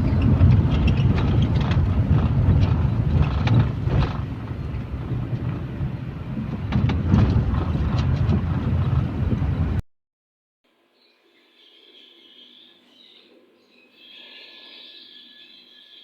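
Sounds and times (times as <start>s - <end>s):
vehicle low rumble: 0.0s - 9.8s
clicks and rattles: 0.1s - 5.6s, 6.5s - 9.5s.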